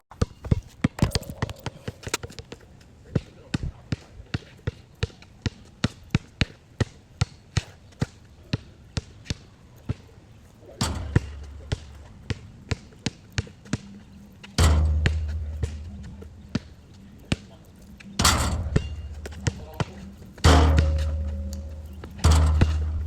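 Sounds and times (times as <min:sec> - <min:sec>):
basketball bouncing: 0:00.2 - 0:02.4, 0:10.8 - 0:23.0
loud hits with ringing tail: 0:14.6 - 0:16.4, 0:18.2 - 0:23.0.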